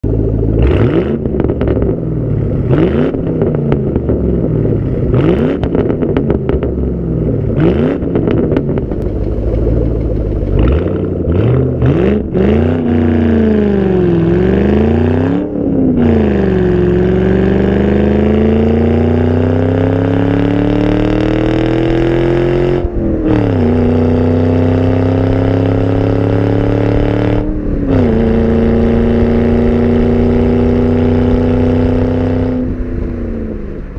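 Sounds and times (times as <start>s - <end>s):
exhaust cracks: 0.0s - 17.5s
car engine revving: 0.0s - 33.9s.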